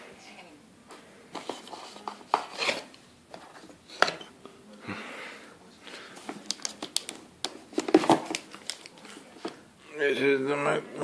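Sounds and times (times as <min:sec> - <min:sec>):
packaging rustling: 0:06.3 - 0:09.6.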